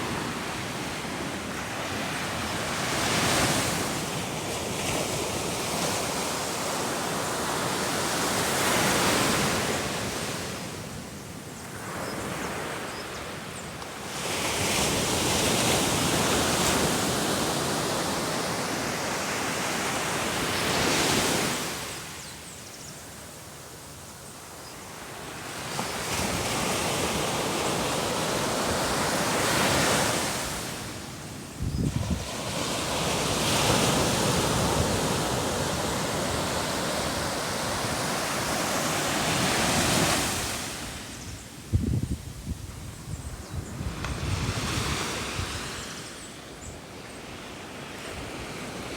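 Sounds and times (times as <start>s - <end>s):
sea waves breaking on shore: 25.0s - 41.3s
wind rumble on microphone: 31.6s - 32.4s, 41.2s - 45.8s.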